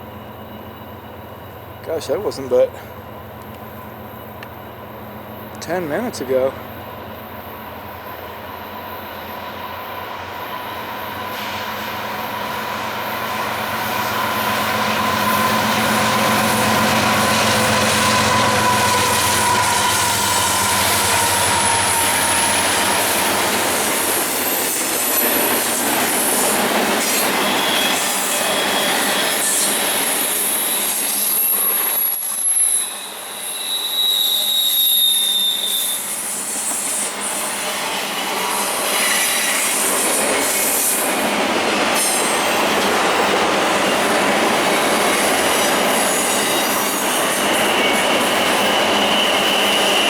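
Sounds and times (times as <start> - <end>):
train wheels rumbling on rail: 0.0 - 50.0
high-pitched wheel squeals: 13.0 - 37.6, 46.0 - 50.0.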